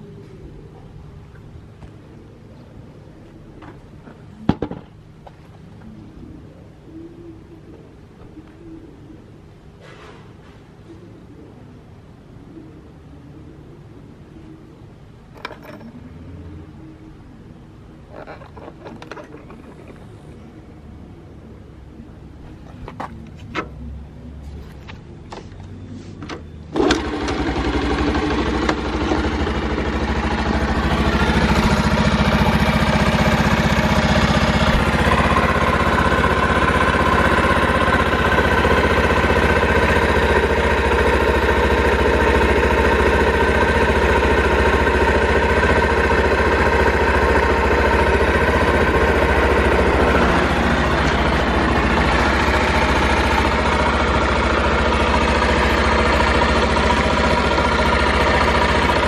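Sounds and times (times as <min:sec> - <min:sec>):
motorcycle engine starting and idling: 0:15.3 - 0:16.4, 0:18.0 - 0:21.0, 0:21.8 - 0:59.0.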